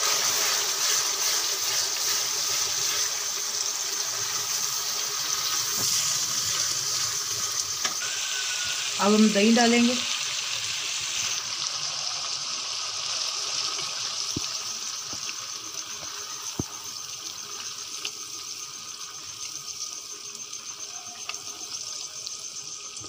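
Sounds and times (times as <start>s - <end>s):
meat sizzling in a wok: 0.0s - 23.0s.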